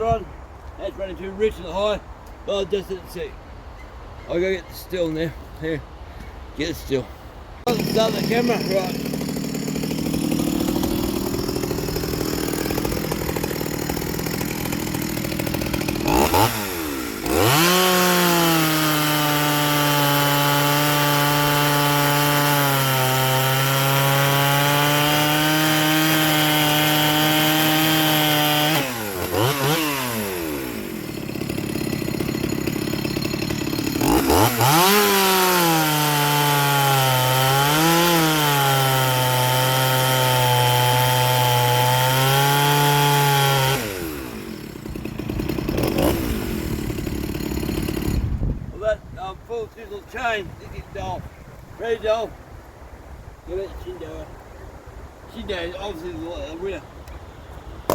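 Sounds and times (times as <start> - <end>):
chainsaw revving and cutting log: 7.7 - 48.6.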